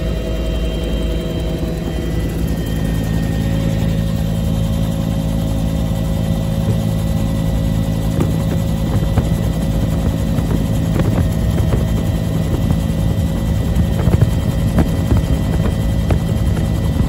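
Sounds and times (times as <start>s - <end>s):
helicopter engine whine: 0.0s - 17.0s
rotor blades beating: 0.0s - 17.0s.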